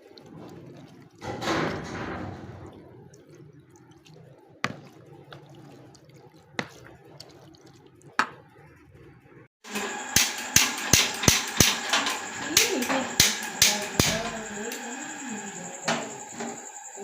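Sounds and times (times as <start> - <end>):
chicken squelching in marinade: 0.0 - 9.2.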